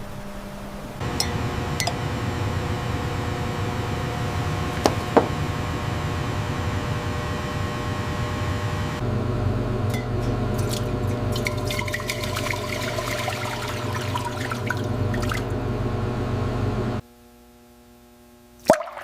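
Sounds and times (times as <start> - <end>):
steady low hum: 0.0 - 17.0
liquid in a container: 9.9 - 15.6, 18.6 - 19.0.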